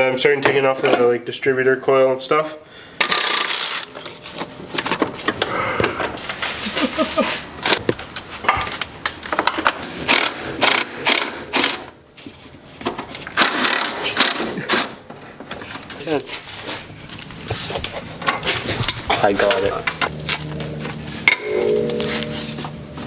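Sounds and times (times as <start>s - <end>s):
ratchet clicking: 3.0s - 3.9s.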